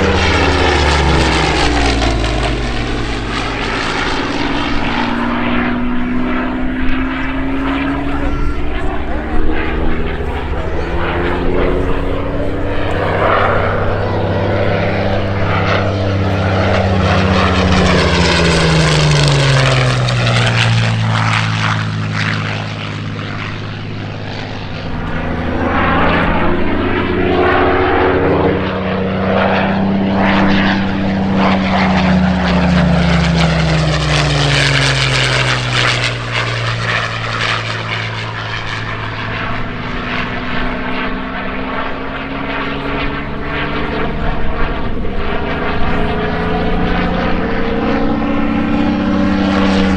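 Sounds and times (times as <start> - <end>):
propeller plane engine passing: 0.0 - 49.9.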